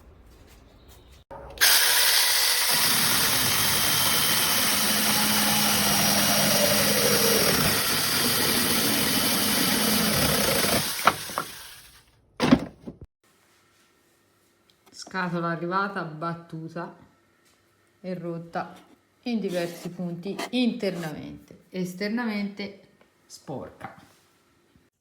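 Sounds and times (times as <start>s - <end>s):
mini chainsaw running: 1.6s - 12.0s.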